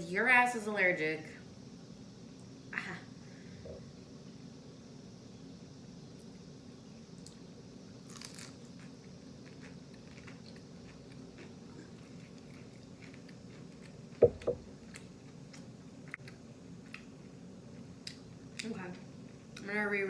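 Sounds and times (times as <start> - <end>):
crunchy bite of fried chicken: 7.2 - 17.2
chewing and mouth clicks: 8.1 - 14.2
loud low thumps: 14.2 - 14.7.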